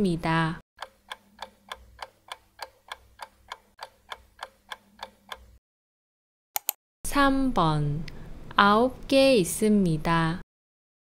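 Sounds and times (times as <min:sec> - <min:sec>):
clock ticking: 0:00.8 - 0:05.6.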